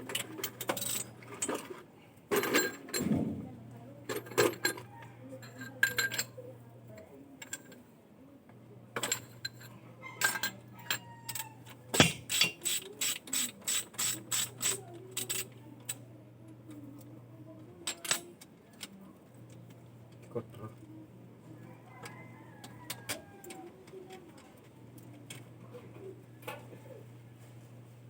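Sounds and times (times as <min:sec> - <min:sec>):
metal tools clinking: 0:00.1 - 0:03.1, 0:05.4 - 0:06.3, 0:10.2 - 0:12.8.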